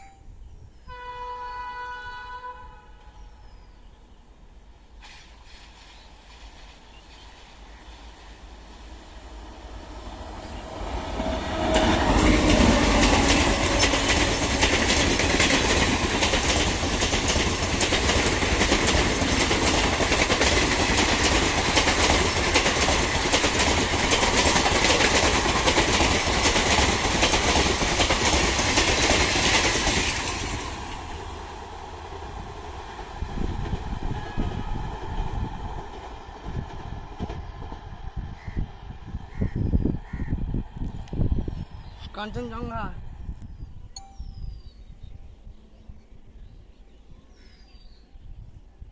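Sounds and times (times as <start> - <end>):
train wheels clattering over rails: 10.7 - 31.1.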